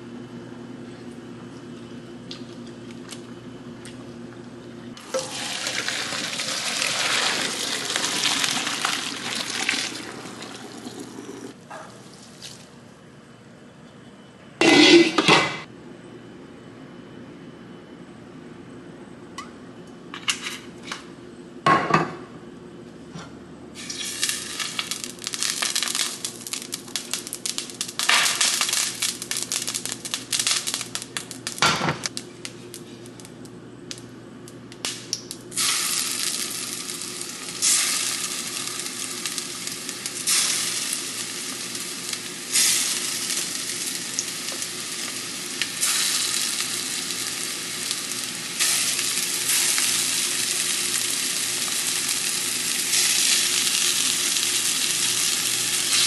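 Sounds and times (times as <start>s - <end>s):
food sizzling in frying pan: 5.0s - 11.6s, 23.8s - 31.7s, 35.5s - 56.0s.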